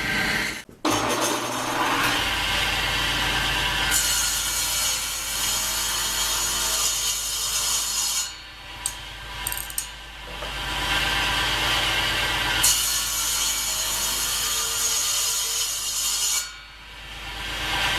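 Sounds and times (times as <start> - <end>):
power saw cutting wood: 0.0 - 9.2, 10.4 - 17.9.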